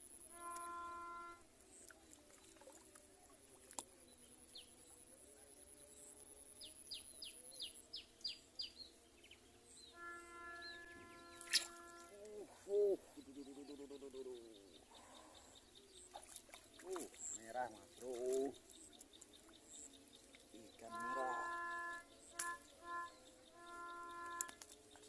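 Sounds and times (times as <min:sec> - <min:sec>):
steady humming tone: 0:00.0 - 0:25.0
bird chirps: 0:06.6 - 0:25.0.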